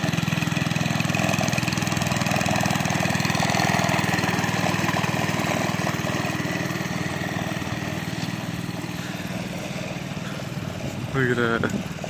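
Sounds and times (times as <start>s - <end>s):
small motorbike engine running: 0.0s - 12.0s.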